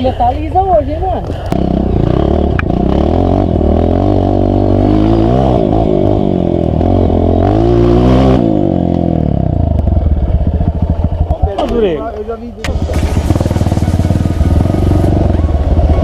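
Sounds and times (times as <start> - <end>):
dirt bike engine revving: 1.5 - 9.6, 12.6 - 16.0.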